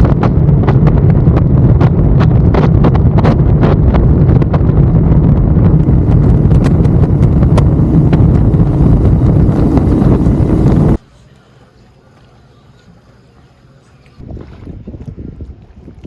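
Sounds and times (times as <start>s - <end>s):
wind noise on microphone: 0.0s - 11.0s, 14.2s - 16.0s
motorcycle engine running: 5.7s - 11.0s.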